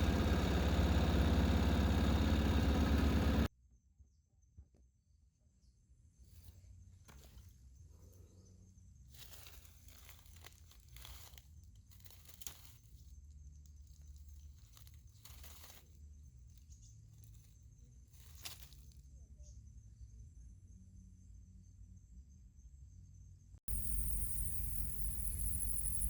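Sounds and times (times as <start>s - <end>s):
rustling and crinkling: 6.3s - 8.1s, 9.1s - 19.0s.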